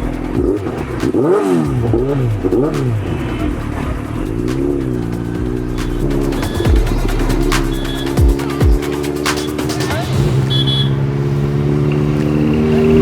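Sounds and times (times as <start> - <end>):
background music: 0.0 - 11.2
motorcycle engine revving: 0.0 - 13.0.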